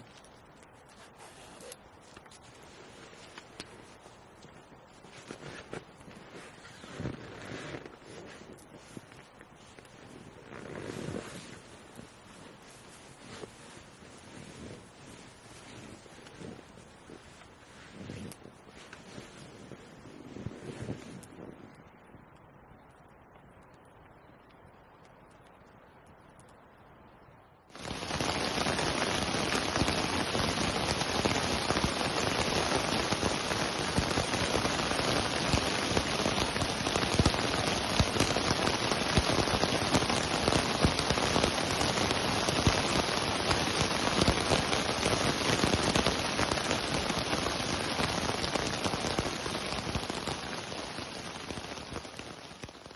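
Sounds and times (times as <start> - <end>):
heavy rain falling: 27.7 - 52.9.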